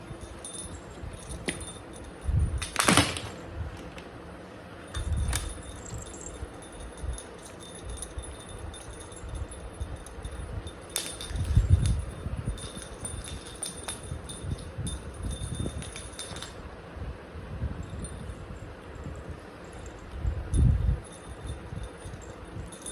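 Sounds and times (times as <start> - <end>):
cat toy bell jingling: 0.0 - 3.5, 4.8 - 16.7, 17.7 - 22.9.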